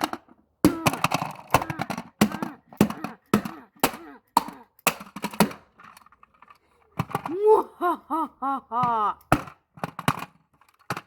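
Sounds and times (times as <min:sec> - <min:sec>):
hammer striking plastic toy: 0:00.0 - 0:06.1, 0:08.8 - 0:11.0
short vocal cry: 0:01.6 - 0:04.7, 0:07.3 - 0:09.3.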